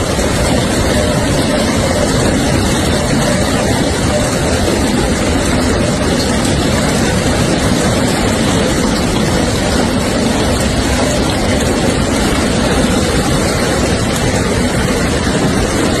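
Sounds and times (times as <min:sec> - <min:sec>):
hail and rain pelting down: 0:00.0 - 0:16.0.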